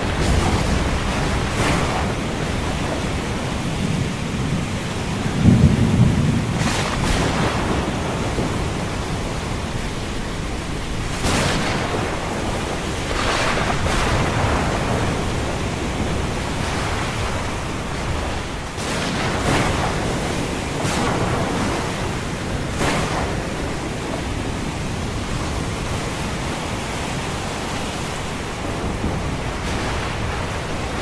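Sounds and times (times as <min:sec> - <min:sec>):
rain hiss: 0:00.0 - 0:31.0
thunder rumble: 0:00.0 - 0:31.0
waves washing in: 0:00.0 - 0:31.0.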